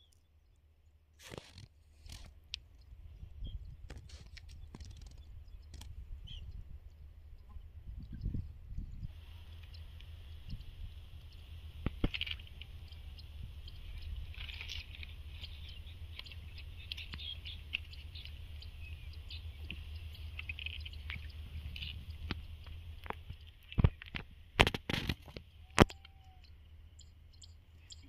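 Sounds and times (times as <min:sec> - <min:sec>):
small birds chirping: 0:00.0 - 0:28.0
steady low rumble: 0:02.3 - 0:28.0.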